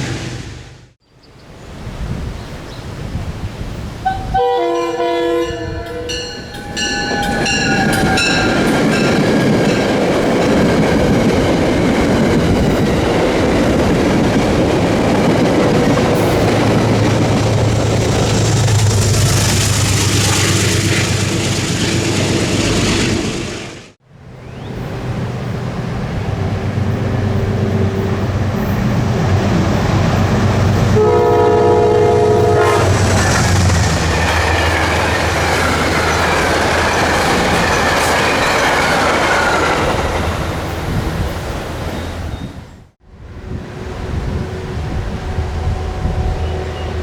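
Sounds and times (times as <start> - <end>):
train horn blasts: 4.0 - 8.8, 30.9 - 33.2, 43.4 - 47.0
train wheels clattering on rails: 6.3 - 23.8, 32.4 - 41.1.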